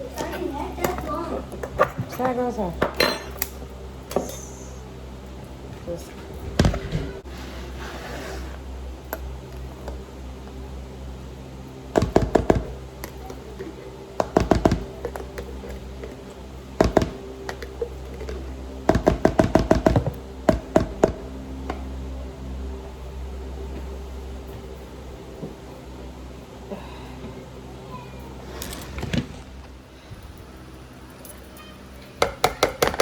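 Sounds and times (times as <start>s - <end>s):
low hum: 2.6s - 32.2s
utensil knocking on a board: 14.2s - 14.9s, 16.8s - 17.2s, 18.9s - 21.2s.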